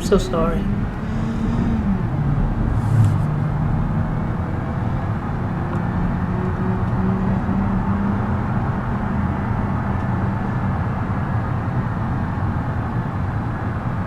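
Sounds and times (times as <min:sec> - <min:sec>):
minivan engine running: 0:00.0 - 0:14.0.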